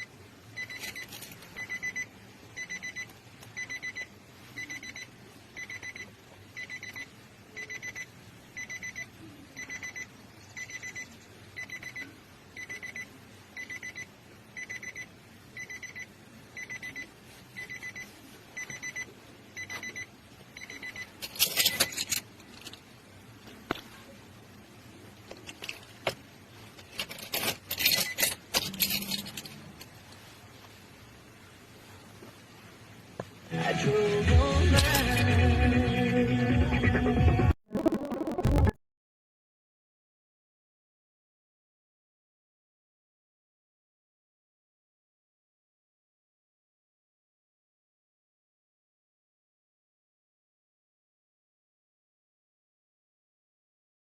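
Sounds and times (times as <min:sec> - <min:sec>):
electronic beeper beeping: 0:37.7 - 0:38.8.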